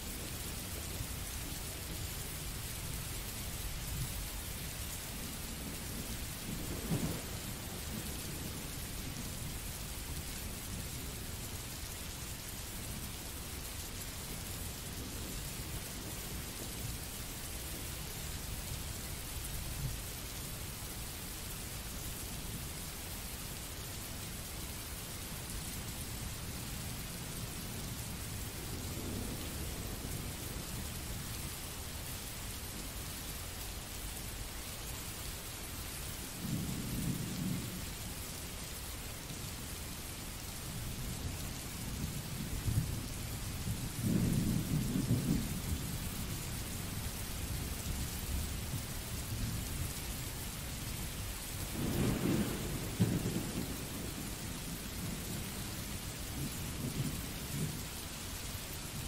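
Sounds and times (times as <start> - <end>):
steady rain hiss: 0.0 - 59.0
low rolls of thunder: 5.2 - 9.8, 36.4 - 38.0, 41.9 - 49.9, 51.6 - 57.9.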